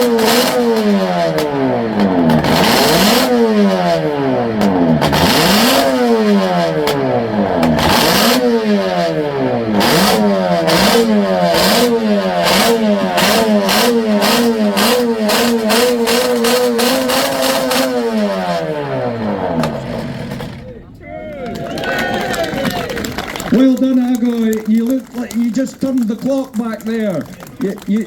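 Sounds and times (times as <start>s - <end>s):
two-stroke motorcycle engine revving: 0.0s - 20.9s.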